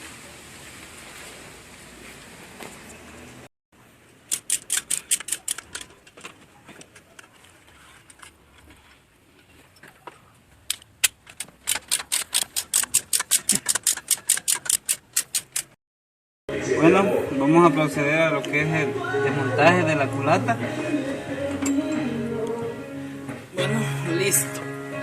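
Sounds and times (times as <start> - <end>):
ratchet wrench clicking: 4.3 - 5.9, 10.7 - 15.8.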